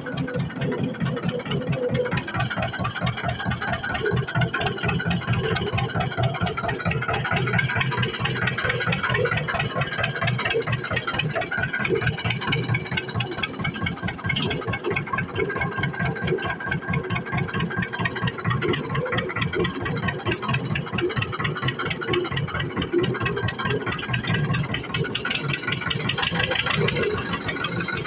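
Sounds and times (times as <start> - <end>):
tractor diesel engine chugging: 0.0 - 28.0.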